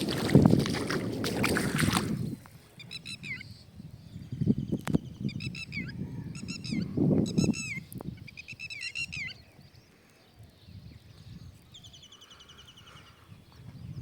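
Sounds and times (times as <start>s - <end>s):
birds calling: 2.6s - 14.0s
fast bird trill: 5.2s - 9.4s.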